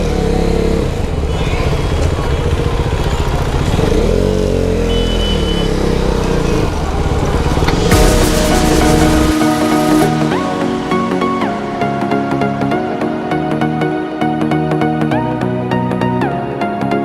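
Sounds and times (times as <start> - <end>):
motorcycle engine revving: 0.0 - 14.4
music: 7.6 - 17.0.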